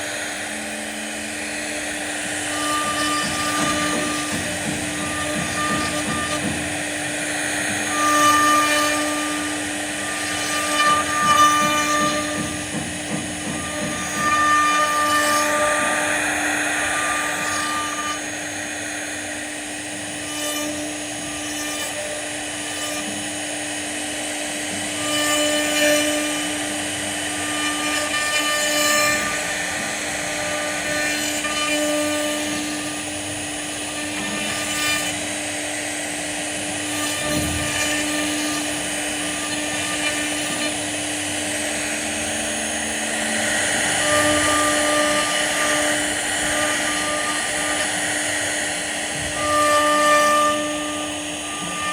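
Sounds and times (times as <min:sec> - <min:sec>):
wood router spindle whine: 0:00.0 - 0:51.9
higher machine tones: 0:00.1 - 0:21.4, 0:35.8 - 0:51.9.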